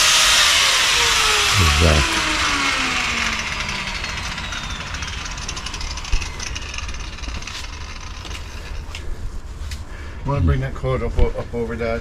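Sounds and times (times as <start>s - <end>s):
power tool spinning down: 0.0s - 9.0s.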